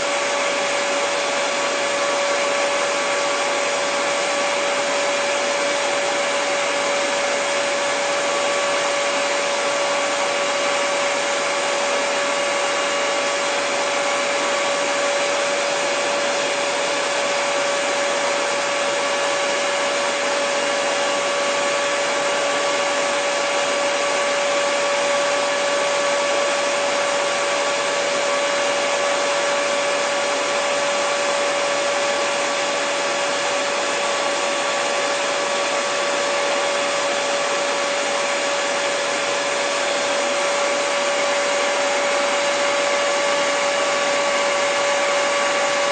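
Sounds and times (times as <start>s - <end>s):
hair dryer running: 0.0s - 45.9s.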